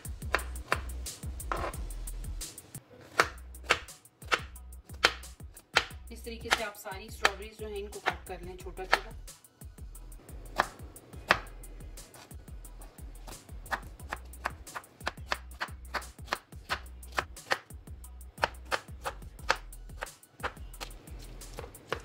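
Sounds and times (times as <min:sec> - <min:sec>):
knife chopping on plastic board: 0:00.0 - 0:01.8, 0:03.0 - 0:09.2, 0:10.5 - 0:11.5, 0:13.2 - 0:17.8, 0:18.4 - 0:22.0
background music: 0:00.0 - 0:22.0.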